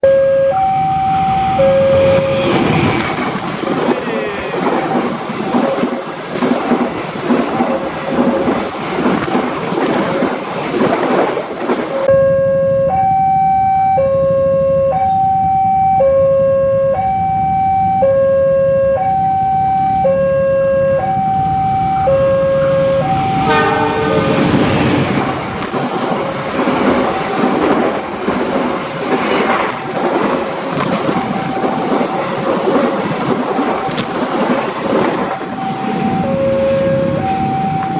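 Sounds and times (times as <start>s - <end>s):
level crossing two-tone alarm: 0.0s - 2.6s, 12.1s - 24.4s, 35.3s - 37.9s
train noise: 0.0s - 37.9s.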